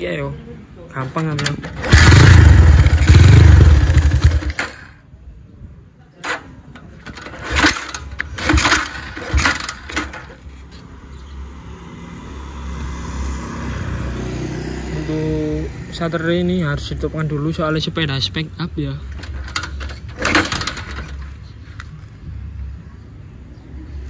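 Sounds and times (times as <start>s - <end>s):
motorcycle engine revving: 1.4s - 5.0s, 7.0s - 10.3s, 19.2s - 21.3s.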